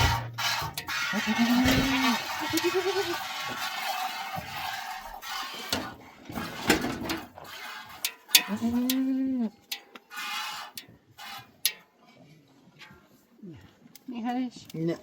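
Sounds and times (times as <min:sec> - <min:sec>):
sharp knocks: 0:00.0 - 0:00.9, 0:01.5 - 0:02.2
farm animal calling: 0:00.0 - 0:03.6
short scraping noises: 0:00.0 - 0:08.7.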